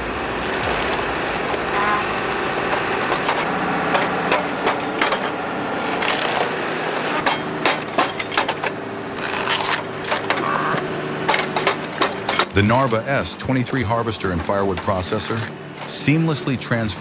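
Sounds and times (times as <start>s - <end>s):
wood cracking and splintering: 0.0s - 16.5s.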